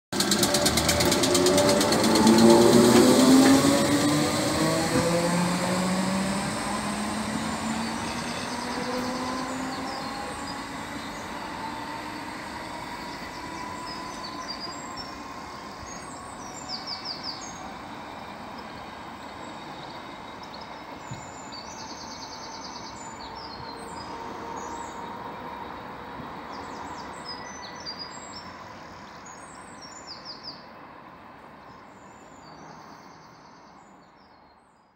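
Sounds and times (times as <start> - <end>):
electric train motor whine: 0.2 - 17.0
birds chirping: 1.1 - 30.8.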